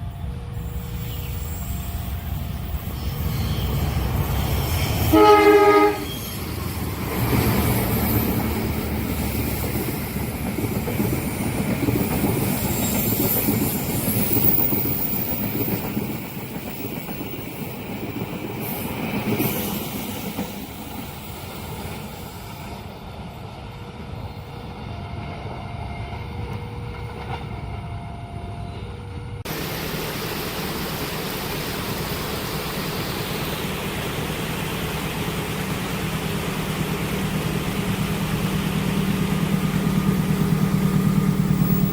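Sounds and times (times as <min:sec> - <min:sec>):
passenger train passing: 0:00.0 - 0:41.9
steady engine hum: 0:29.5 - 0:41.9.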